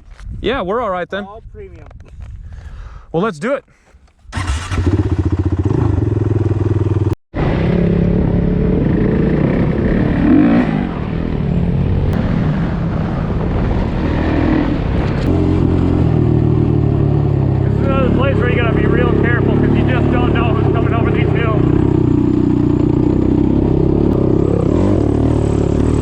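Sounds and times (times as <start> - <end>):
off-road vehicle engines revving: 4.2 - 26.0.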